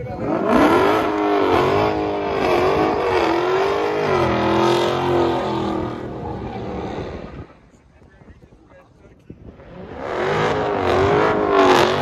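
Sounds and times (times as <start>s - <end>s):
car engine revving hard: 0.2s - 7.3s, 9.6s - 12.0s.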